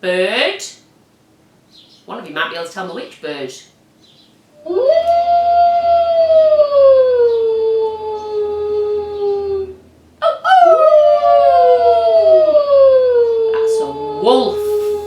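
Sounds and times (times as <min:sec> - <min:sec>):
wolves howling: 0:04.6 - 0:15.0.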